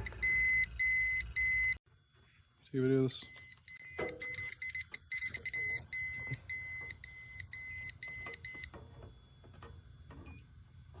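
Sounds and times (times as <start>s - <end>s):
leak detector beeping rapidly: 0.0s - 1.8s, 3.3s - 8.7s.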